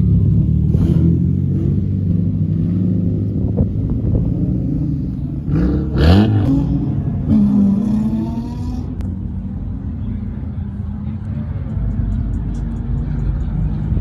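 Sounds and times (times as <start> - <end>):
car engine running and revving: 0.0 - 14.0.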